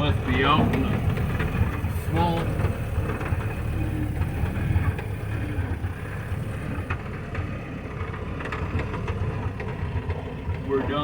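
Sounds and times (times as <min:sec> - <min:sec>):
car engine running: 0:00.0 - 0:11.0
knocks and rattles: 0:00.1 - 0:05.3.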